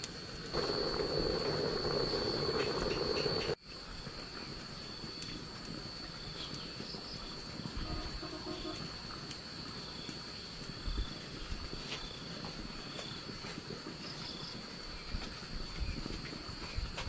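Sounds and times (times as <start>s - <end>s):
high-pitched insect drone: 0.6s - 3.6s
faint chirps and ticks: 0.6s - 17.0s.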